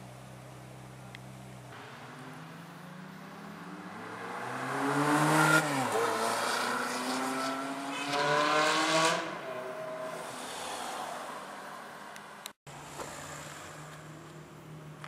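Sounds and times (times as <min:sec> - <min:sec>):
supercar engine revving: 0:01.8 - 0:09.9.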